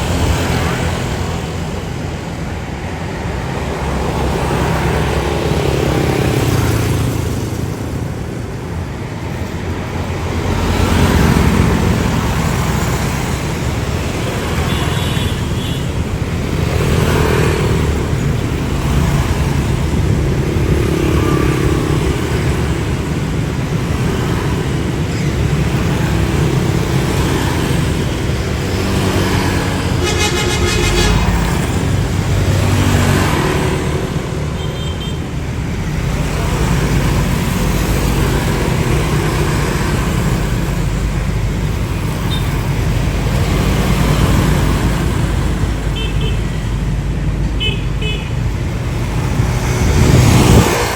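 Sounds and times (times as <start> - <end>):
road traffic noise: 0.0 - 50.9
vehicle horn honking: 29.9 - 31.6, 47.6 - 48.4.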